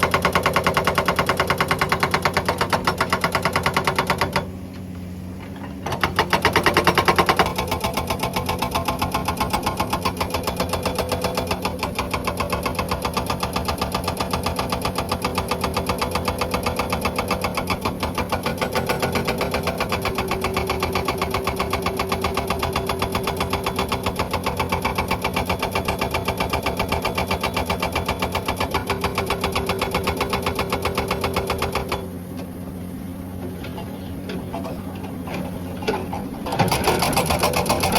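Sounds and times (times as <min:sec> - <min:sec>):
hydraulic breaker hammering rock: 0:00.0 - 0:04.6, 0:05.5 - 0:32.2, 0:33.8 - 0:37.9
diesel engine running: 0:00.0 - 0:37.9.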